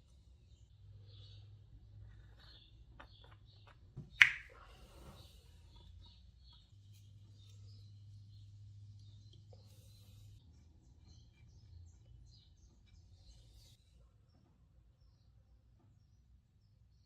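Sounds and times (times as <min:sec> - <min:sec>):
sharp snap: 0:04.2 - 0:04.5.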